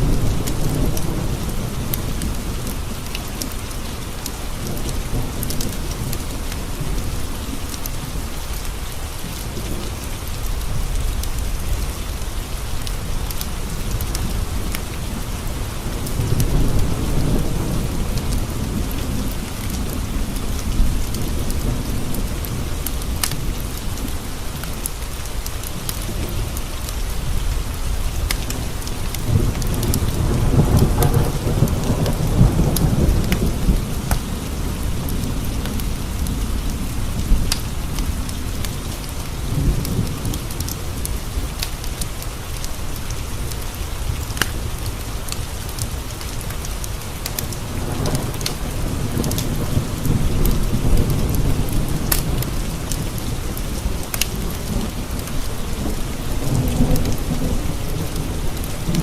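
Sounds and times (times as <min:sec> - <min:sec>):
heavy rain on window glass: 0:00.0 - 0:59.0
rolling thunder: 0:27.2 - 0:41.5, 0:47.4 - 0:59.0.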